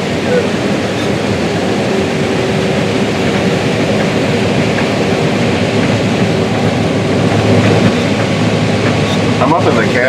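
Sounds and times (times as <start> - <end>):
combine harvester running: 0.0 - 10.0.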